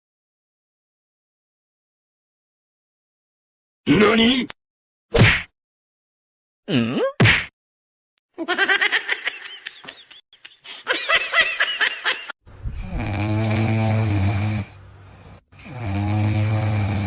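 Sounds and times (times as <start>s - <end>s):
loud snoring: 12.6s - 17.0s.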